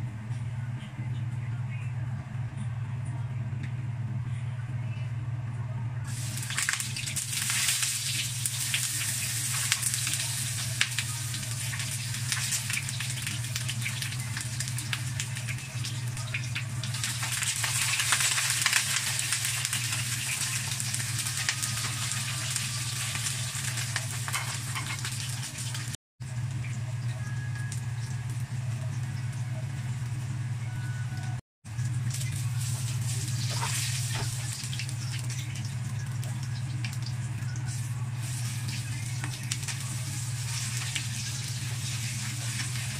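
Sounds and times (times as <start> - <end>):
steady low hum: 0.0 - 42.9
eggplant sizzling in hot oil: 6.1 - 27.1, 31.7 - 42.9.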